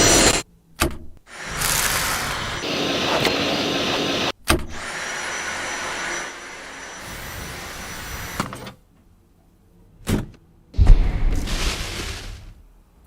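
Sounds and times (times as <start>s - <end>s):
cordless vacuum cleaner running: 1.4s - 8.4s.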